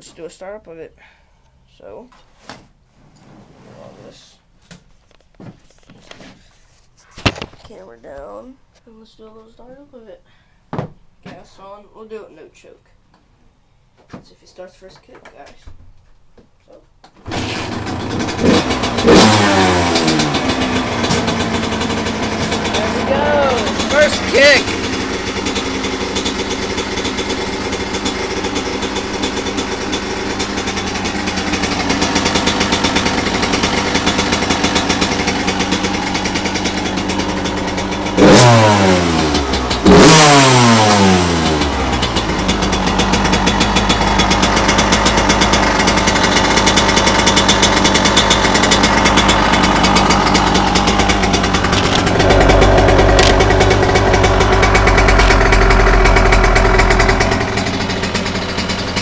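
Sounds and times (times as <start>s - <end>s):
two-stroke engine idling and revving: 17.2s - 59.0s
heavier low rumble: 49.4s - 58.1s.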